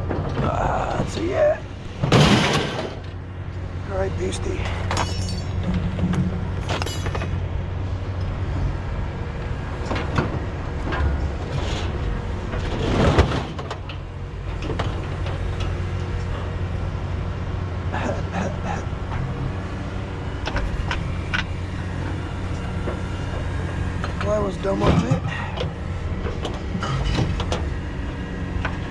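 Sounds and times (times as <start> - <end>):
vehicle engine running: 0.0 - 28.9
knocks and clatter: 2.0 - 3.2, 4.6 - 7.5, 9.8 - 16.3, 22.5 - 28.9.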